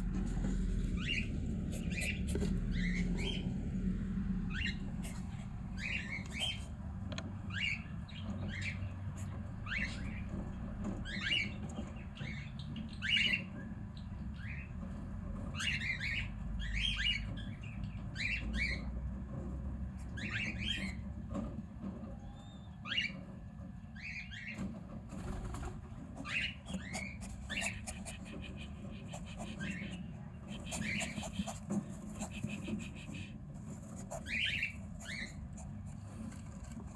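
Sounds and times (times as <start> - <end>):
cockatiels chirping: 0.0 - 3.6, 4.4 - 6.7, 7.4 - 14.7, 15.6 - 19.0, 20.0 - 21.0, 22.4 - 23.2, 26.1 - 35.9.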